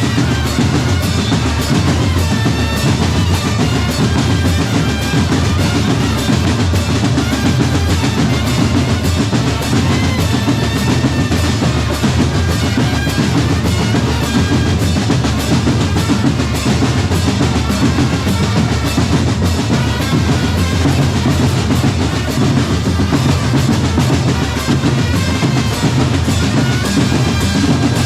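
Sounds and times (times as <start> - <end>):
bass drums and snare drums: 0.0 - 28.0.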